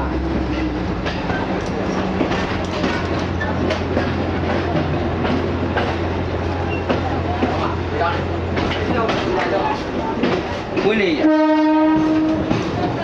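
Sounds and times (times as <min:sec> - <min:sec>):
train running gear drone: 0:00.0 - 0:13.0
wheels clicking over rail joints: 0:00.4 - 0:13.0.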